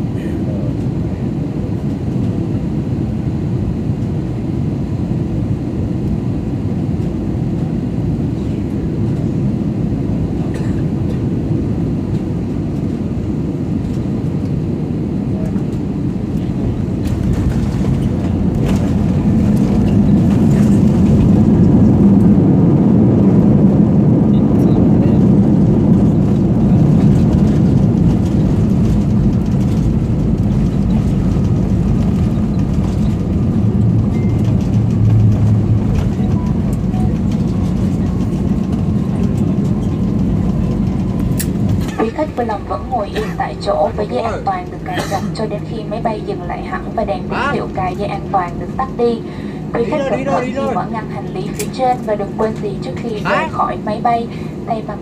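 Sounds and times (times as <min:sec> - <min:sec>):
jet airliner cabin rumble: 0:00.0 - 0:55.0.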